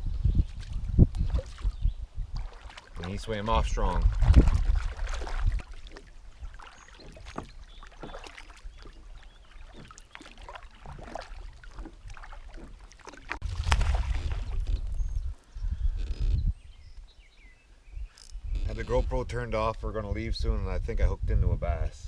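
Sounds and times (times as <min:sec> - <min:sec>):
water splashing around kayak: 0:00.0 - 0:15.3
wind rumbling on microphone: 0:00.0 - 0:22.0.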